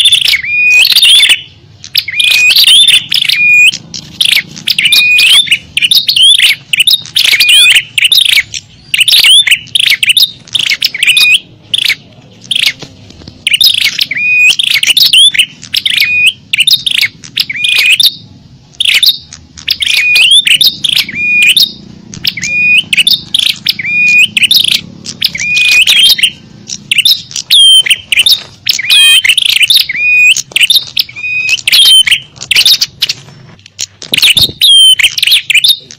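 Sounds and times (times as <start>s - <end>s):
bird lure call chirps: 0.0s - 35.9s.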